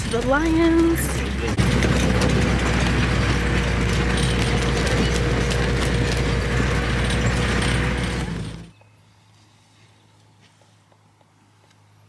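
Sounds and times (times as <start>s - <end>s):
vehicle body rattling: 0.0s - 8.7s
vehicle engine running: 0.0s - 8.7s.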